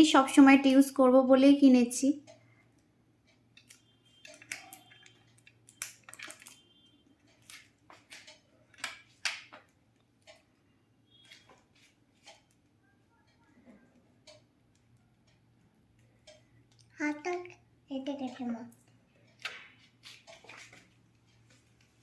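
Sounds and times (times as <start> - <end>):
plastic parts clicking and crackling: 3.5 - 10.5, 18.2 - 21.9.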